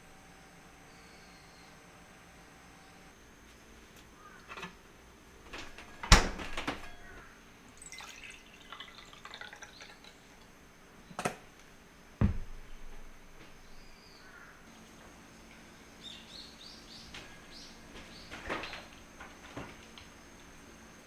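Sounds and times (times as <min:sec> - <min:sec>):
sharp knocks: 0:12.2 - 0:13.1
dull thump: 0:12.2 - 0:13.6.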